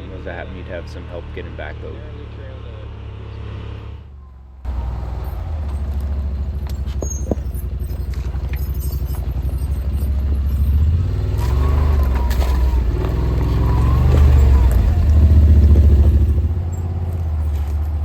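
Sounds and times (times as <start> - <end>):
vehicle engine running: 4.7 - 18.0.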